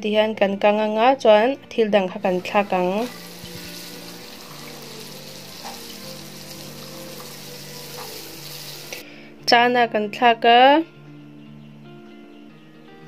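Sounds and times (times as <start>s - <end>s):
soft background music: 0.0s - 13.0s
food sizzling in oil: 2.2s - 9.0s.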